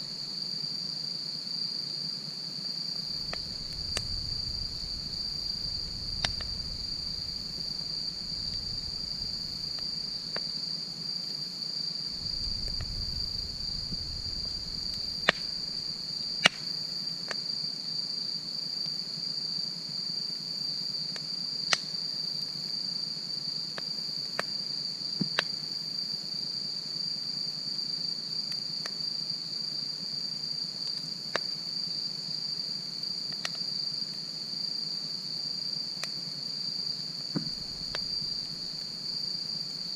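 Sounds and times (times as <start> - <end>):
crickets chirring: 0.0 - 39.9
wood fire crackling and popping: 3.0 - 10.4, 12.1 - 16.6, 37.4 - 38.9
low rumble: 3.1 - 9.8, 12.2 - 15.7.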